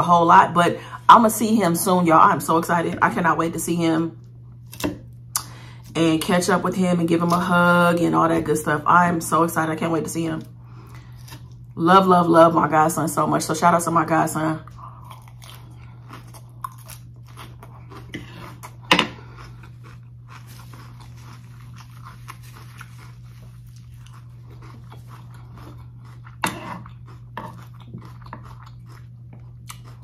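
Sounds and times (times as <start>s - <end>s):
steady low hum: 0.0s - 30.0s
crunching and chewing lettuce: 10.7s - 11.8s, 14.6s - 30.0s.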